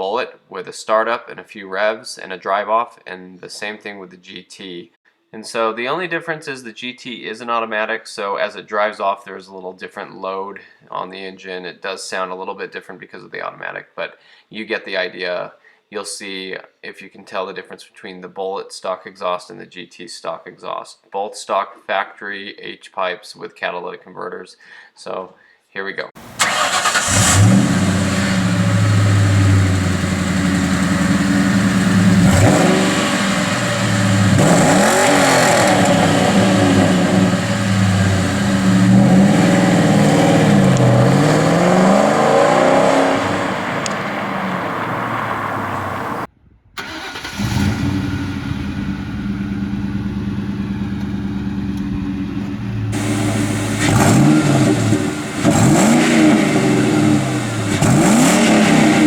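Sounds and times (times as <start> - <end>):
car engine idling and revving: 26.2 - 46.3, 47.3 - 59.0.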